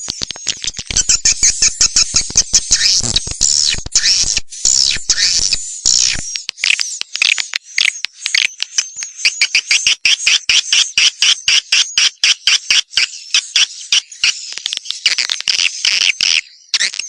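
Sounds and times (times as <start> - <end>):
recorded bird twittering chirps: 0.0 - 17.0.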